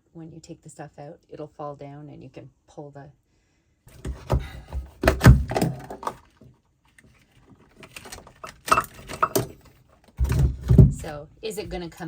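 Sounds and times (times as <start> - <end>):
hard parts clattering and knocking: 7.1 - 12.0.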